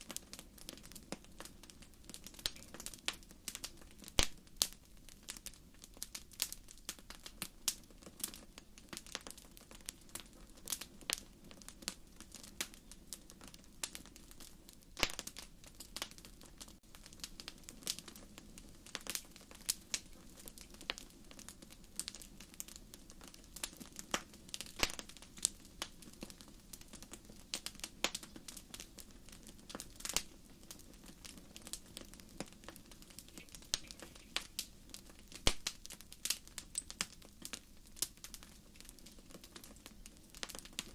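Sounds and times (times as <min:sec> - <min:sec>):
low rumble of flame: 0:00.0 - 0:40.9
wood fire crackling: 0:00.0 - 0:40.9.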